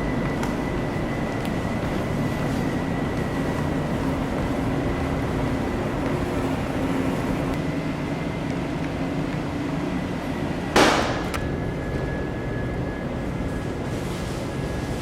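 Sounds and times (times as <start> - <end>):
ship engines droning: 0.0 - 15.0.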